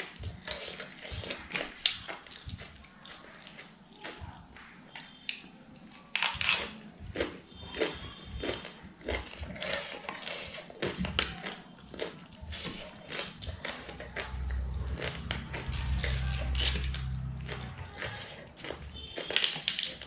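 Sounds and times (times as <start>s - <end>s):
chewing crunchy cabbage: 0.0s - 20.0s
low steady hum: 13.4s - 19.5s.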